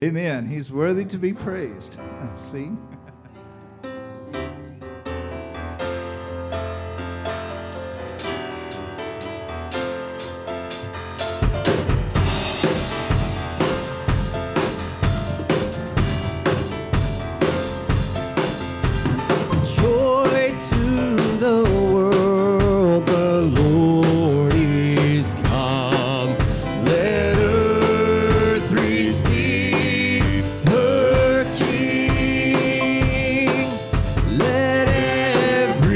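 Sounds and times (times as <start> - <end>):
keyboard chords: 0.8 - 35.9
bass: 4.2 - 35.9
drum kit beat: 8.0 - 35.9
person singing: 19.7 - 35.9.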